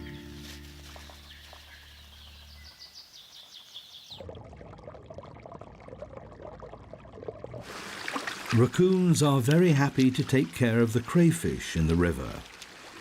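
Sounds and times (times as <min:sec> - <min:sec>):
background music: 0:00.0 - 0:00.9
river water sloshing and trickling: 0:00.3 - 0:13.0
small water splashes: 0:00.7 - 0:13.0.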